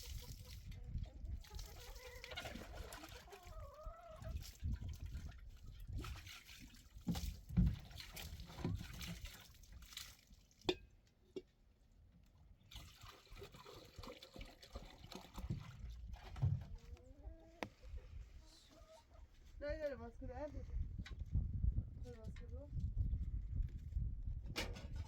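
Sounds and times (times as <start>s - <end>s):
water trickling and splashing: 0.0s - 11.0s, 12.6s - 18.1s.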